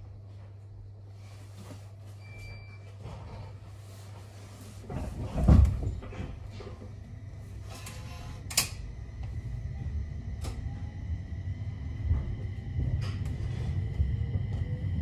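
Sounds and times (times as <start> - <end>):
train rumble: 3.1 - 15.0.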